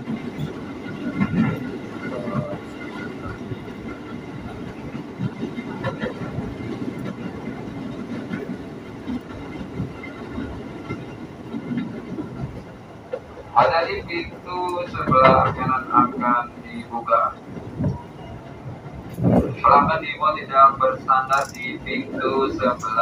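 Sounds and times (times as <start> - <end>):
train rumbling inside carriage: 0.0 - 23.0
wheels knocking on track: 21.3 - 21.8.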